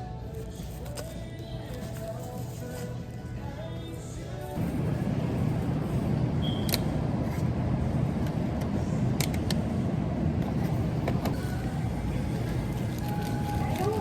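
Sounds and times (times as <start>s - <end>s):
truck engine and road noise: 4.6s - 14.0s.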